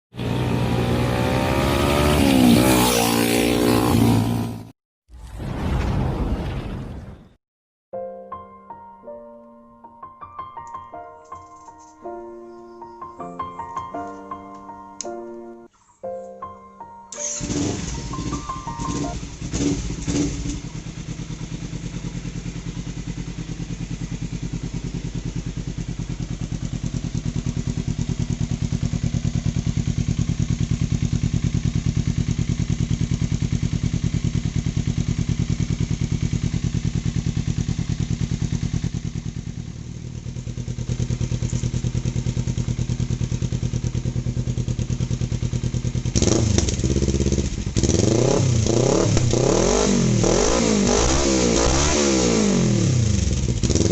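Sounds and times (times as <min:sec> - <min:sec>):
motorcycle engine revving: 0:00.1 - 0:04.7, 0:17.2 - 0:53.9
motorcycle engine idling: 0:17.3 - 0:48.9, 0:53.0 - 0:53.9.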